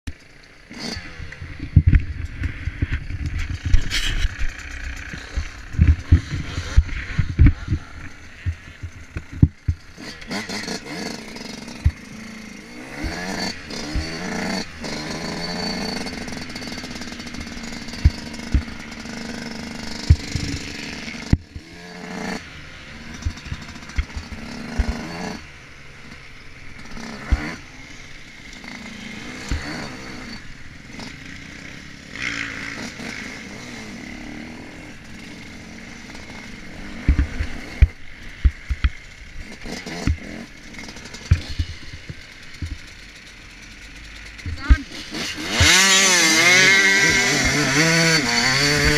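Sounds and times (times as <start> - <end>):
motocross bike engine revving: 0.1 - 48.9.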